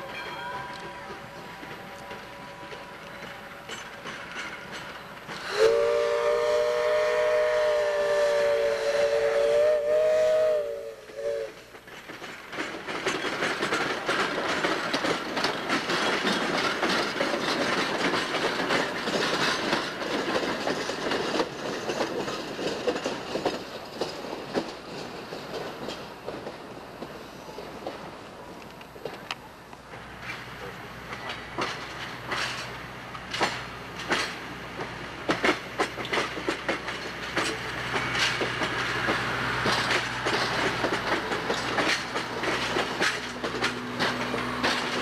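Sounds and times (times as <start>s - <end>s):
wheels clicking over rail joints: 0.0s - 45.0s
locomotive whistle chord: 5.5s - 11.6s.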